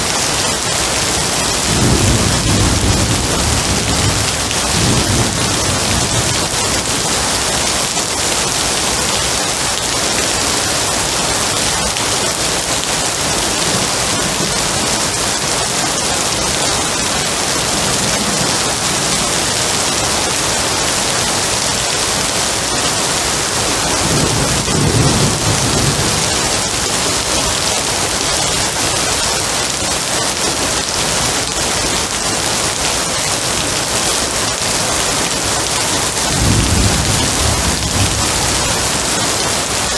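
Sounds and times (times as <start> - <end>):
heavy rain falling: 0.0 - 39.9
low roll of thunder: 1.6 - 6.6, 23.9 - 26.8, 36.3 - 39.0.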